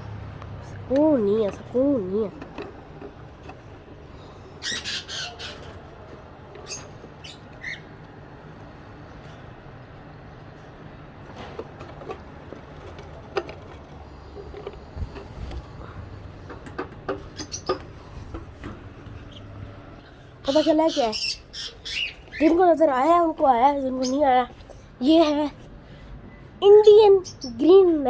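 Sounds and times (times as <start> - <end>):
light clicks and knocks: 0.3 - 4.3, 11.2 - 19.3
birds squawking: 1.2 - 9.1, 16.2 - 24.5.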